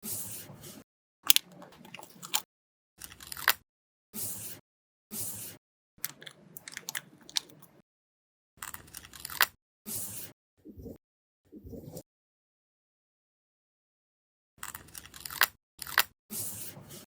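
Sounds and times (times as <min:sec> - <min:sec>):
paper crinkling and crackling: 0:01.3 - 0:02.4.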